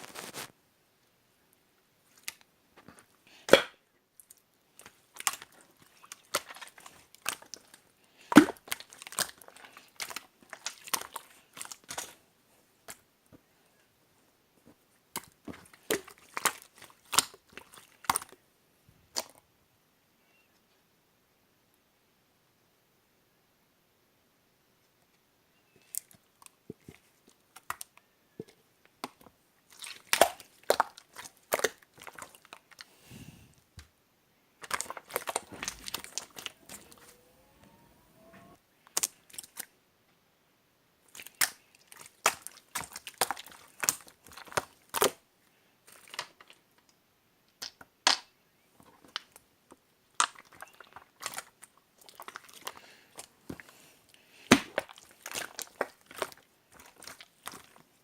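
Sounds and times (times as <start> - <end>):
slime squished by hand: 4.8 - 12.2, 29.1 - 32.9, 34.6 - 37.7, 41.1 - 45.2, 54.4 - 57.8.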